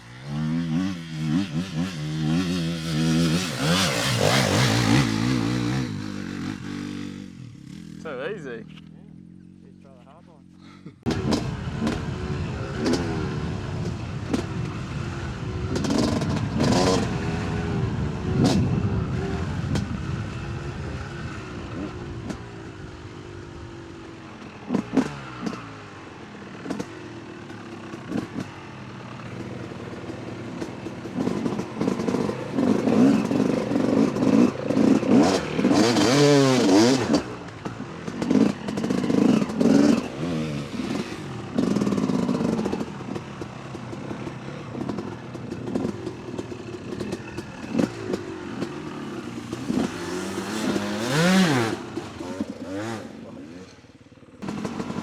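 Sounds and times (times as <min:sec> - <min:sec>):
dirt bike engine revving: 0:00.0 - 0:55.0
bike rattles and knocks: 0:29.3 - 0:53.0.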